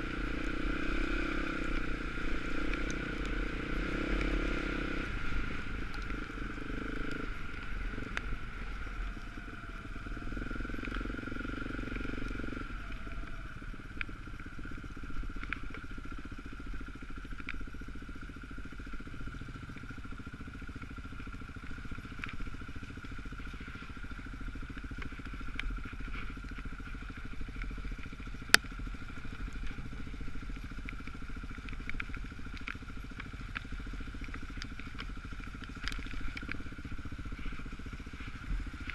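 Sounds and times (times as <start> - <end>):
dirt bike engine running: 0.0 - 38.9
small clicks: 24.8 - 38.9.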